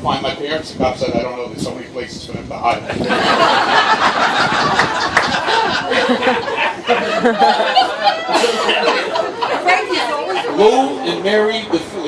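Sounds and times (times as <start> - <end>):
scattered talk: 0.0 - 12.0
crowd laughing: 2.9 - 11.2.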